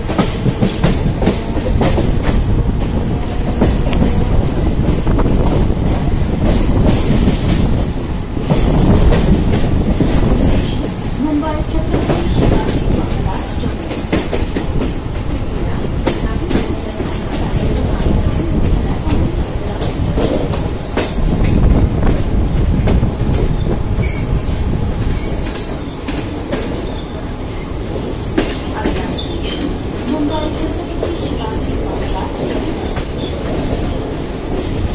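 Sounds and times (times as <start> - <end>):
train wheels rumbling on tracks: 0.0 - 34.9.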